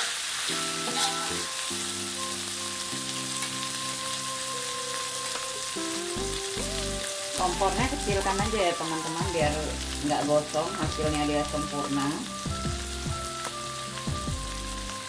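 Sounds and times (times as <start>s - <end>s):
paste sizzling in hot oil: 0.0s - 15.0s
metal spatula scraping wok: 0.7s - 1.6s.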